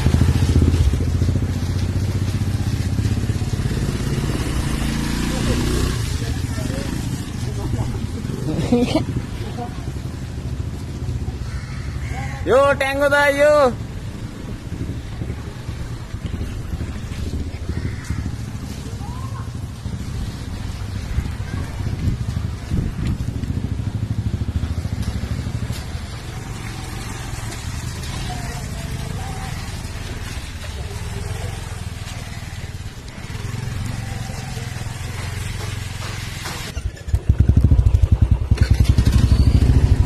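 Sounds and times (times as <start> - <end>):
motorcycle engine rumble: 0.0 - 40.0
tyres on wet road: 0.0 - 40.0
wind noise: 14.0 - 24.0.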